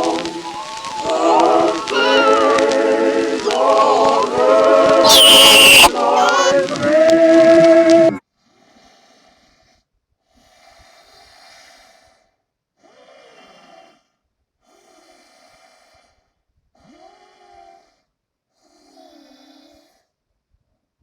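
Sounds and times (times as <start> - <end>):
noisy rhythmic breathing with whine: 0.0 - 8.2.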